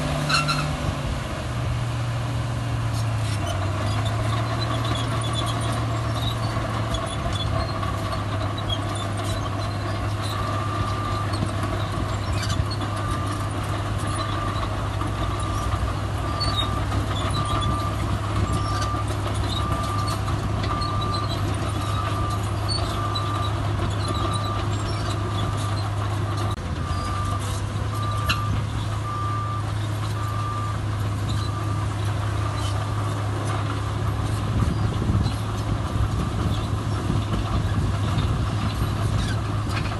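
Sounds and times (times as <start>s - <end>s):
heavy diesel machinery running: 0.0s - 39.9s
reversing alarm beeping: 16.3s - 24.6s, 26.8s - 31.9s.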